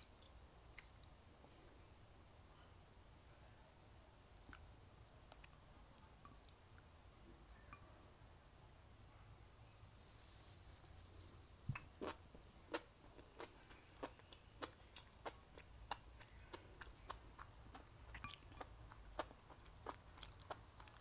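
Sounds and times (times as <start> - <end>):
person chewing with wet clicks: 12.0 - 21.0.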